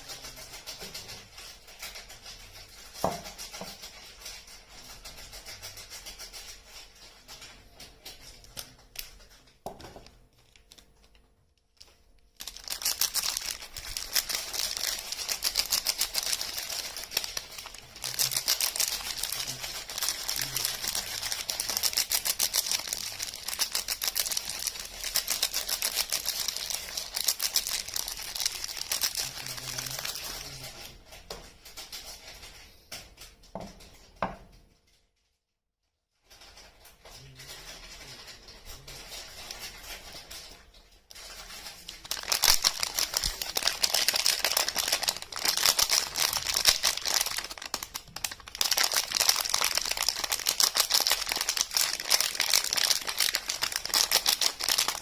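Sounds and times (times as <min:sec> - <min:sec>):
wrappers crinkling and tearing: 0:00.0 - 0:31.0, 0:36.2 - 0:55.0.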